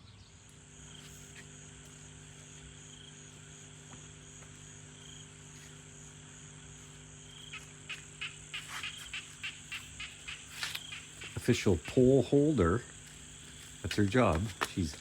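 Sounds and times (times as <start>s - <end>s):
faint insect drone: 0.0s - 15.0s
frog short repeated calls: 7.4s - 12.4s.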